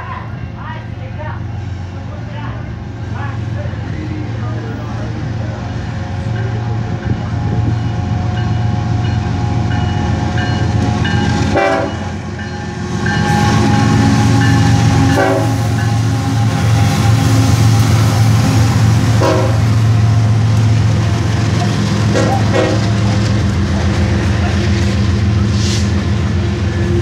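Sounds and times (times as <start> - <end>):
locomotive engine rumble: 0.0 - 27.0
train wheel noise: 0.0 - 27.0
train horn: 11.2 - 18.3, 19.1 - 19.8, 22.1 - 23.0.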